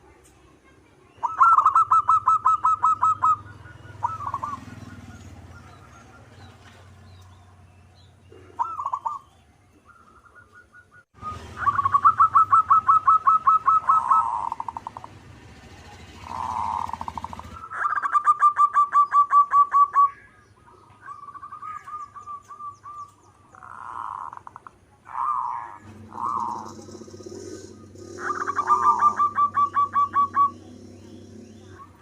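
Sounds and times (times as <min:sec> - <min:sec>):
doves cooing: 0:01.2 - 0:32.0.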